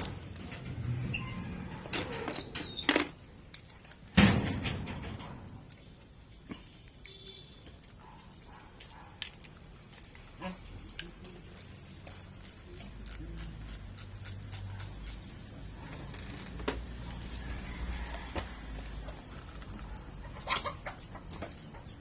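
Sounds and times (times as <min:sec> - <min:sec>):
metal parts clicking and clinking: 0:06.7 - 0:15.3.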